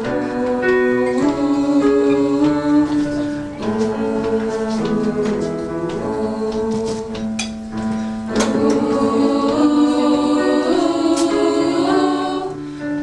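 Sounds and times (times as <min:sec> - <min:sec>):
choir and band music: 0:00.0 - 0:13.0.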